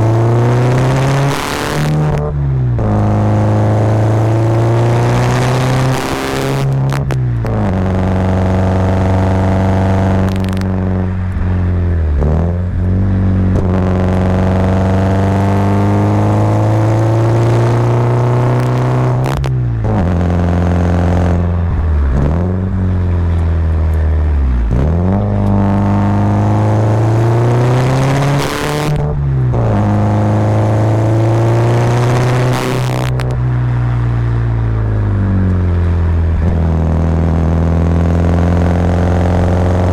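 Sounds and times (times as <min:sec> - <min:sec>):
car engine revving uphill: 0:00.0 - 0:39.9.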